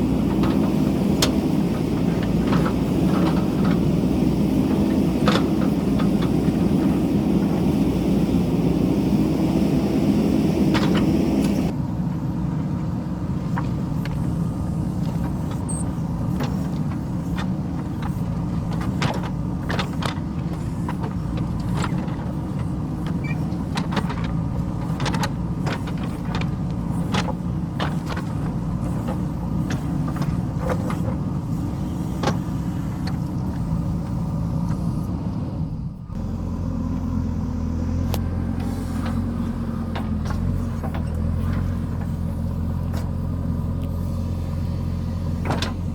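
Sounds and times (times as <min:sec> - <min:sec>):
diesel engine running: 0:00.0 - 0:45.9
short knocks and clanks: 0:45.4 - 0:45.9.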